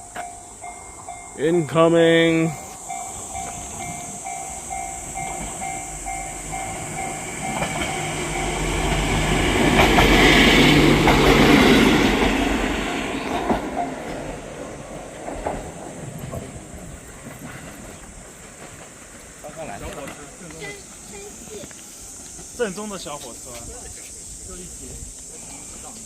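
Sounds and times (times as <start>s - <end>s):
small train passing: 0.0s - 26.0s
pulsing tone: 2.5s - 10.9s.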